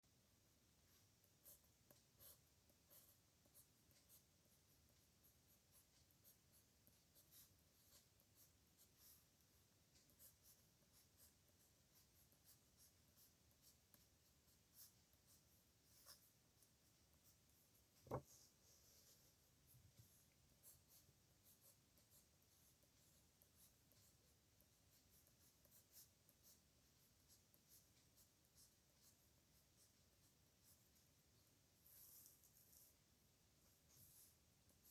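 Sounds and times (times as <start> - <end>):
pen scratching on paper: 1.3 - 4.2, 5.2 - 9.3, 10.0 - 18.4, 24.9 - 26.6, 31.8 - 32.9.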